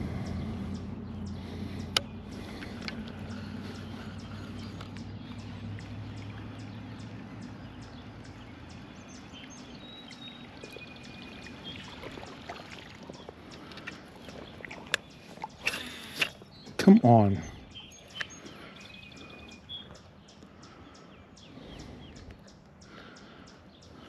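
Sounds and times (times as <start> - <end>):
low hum: 0.0 - 16.5.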